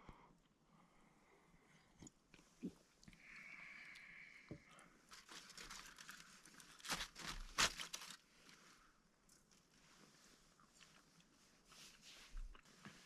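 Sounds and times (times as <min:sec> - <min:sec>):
crinkling and rustling handling noise: 0:05.0 - 0:13.0.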